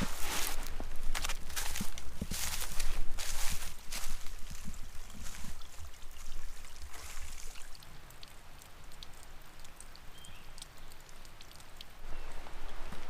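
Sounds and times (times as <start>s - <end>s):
footsteps through dry leaves: 0.0s - 7.4s
small ticks and crackles: 0.1s - 13.0s.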